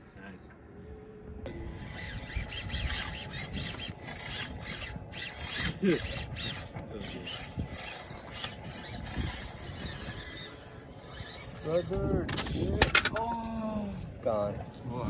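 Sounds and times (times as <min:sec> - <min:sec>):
toy cars scraping over rocks: 0:01.5 - 0:15.0
whir of small gears: 0:01.5 - 0:15.0
sharp squeak: 0:01.6 - 0:12.9.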